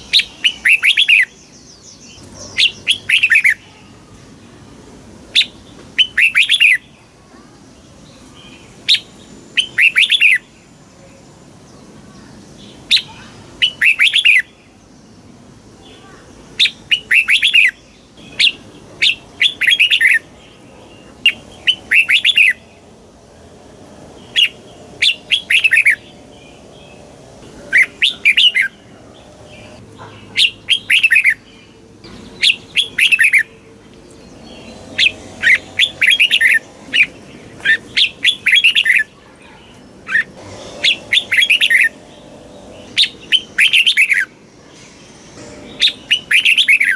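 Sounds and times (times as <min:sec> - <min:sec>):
bulbul singing: 0:12.3 - 0:46.9.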